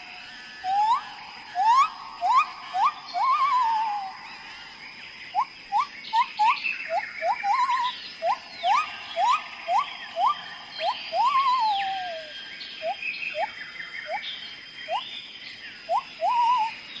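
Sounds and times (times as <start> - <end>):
faint steady high tone: 0.0 - 17.0
bird whistles: 0.6 - 4.1, 5.3 - 14.2, 15.9 - 16.8.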